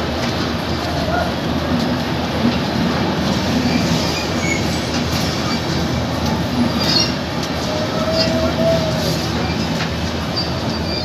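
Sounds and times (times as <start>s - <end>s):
train wheels rumbling on rail: 0.0s - 11.0s
faint wheel squeal: 3.6s - 4.9s, 6.8s - 11.0s.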